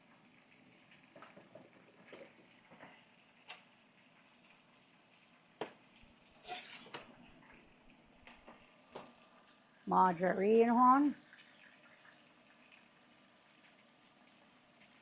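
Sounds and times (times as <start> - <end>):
utensils clattering: 6.4 - 7.2.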